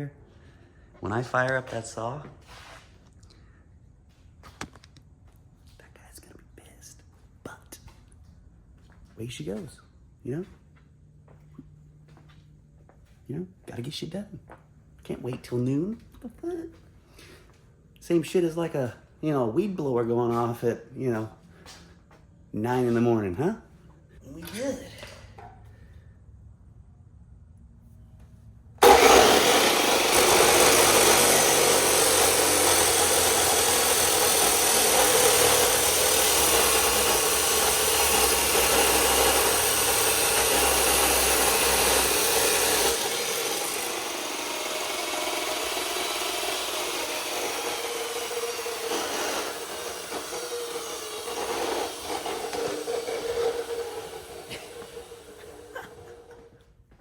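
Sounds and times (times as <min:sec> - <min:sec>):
power saw cutting steel: 0:28.8 - 0:56.5.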